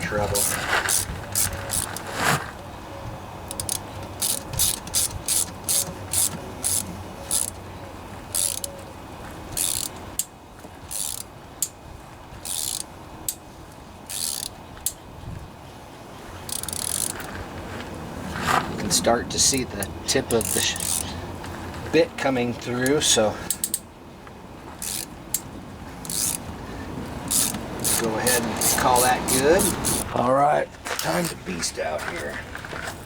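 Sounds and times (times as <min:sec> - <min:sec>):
hand tap metallic clicks and rasps: 0:00.0 - 0:02.6, 0:03.4 - 0:07.6, 0:08.3 - 0:08.9, 0:16.4 - 0:17.6, 0:19.8 - 0:22.0, 0:22.6 - 0:23.9, 0:24.8 - 0:26.5, 0:27.2 - 0:30.2.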